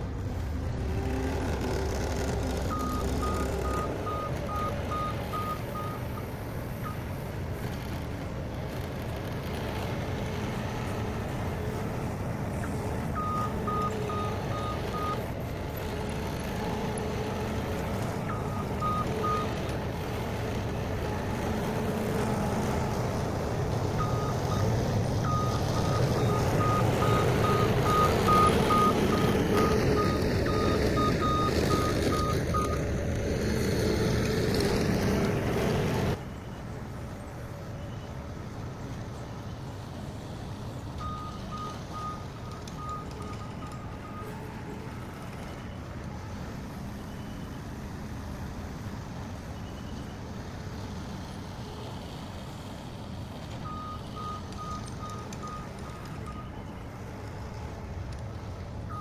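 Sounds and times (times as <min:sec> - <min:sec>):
skid steer engine running: 0:00.0 - 0:36.3
reversing alarm beeping: 0:02.6 - 0:06.0, 0:13.2 - 0:15.2, 0:24.0 - 0:32.8, 0:41.0 - 0:45.8.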